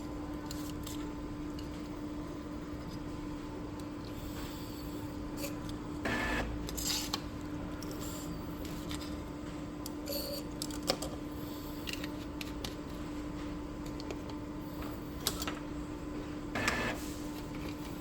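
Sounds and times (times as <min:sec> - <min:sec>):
inkjet printer mechanism: 0:16.6 - 0:18.0.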